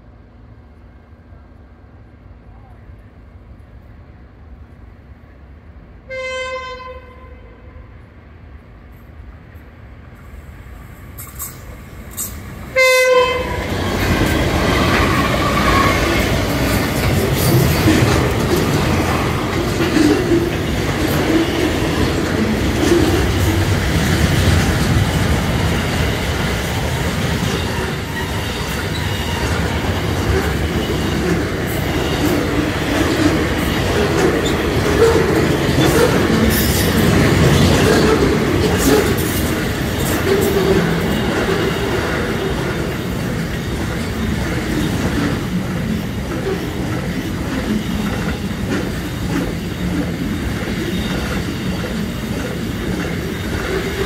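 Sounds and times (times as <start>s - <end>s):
train horn blasts: 6.1s - 8.0s, 12.7s - 13.8s
freight train wheels on rails: 8.0s - 54.0s.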